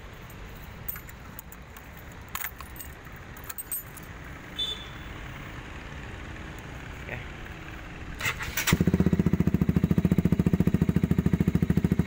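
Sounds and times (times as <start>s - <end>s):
keys jingling: 0.2s - 4.2s.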